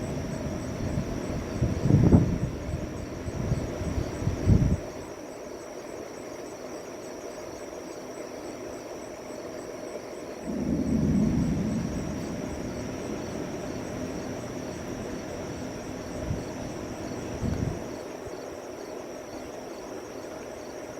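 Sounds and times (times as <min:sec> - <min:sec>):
low outdoor background: 0:00.0 - 0:20.9
thunder rumbling: 0:10.4 - 0:17.9.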